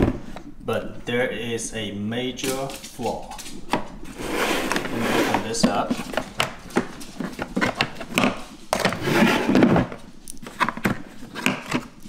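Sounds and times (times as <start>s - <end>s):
scraping rustle: 2.4s - 11.9s.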